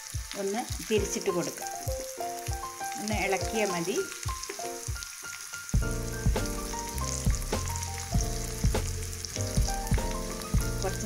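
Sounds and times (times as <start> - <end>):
background music with beat: 0.0 - 11.0
vegetables sizzling in oil: 0.0 - 11.0.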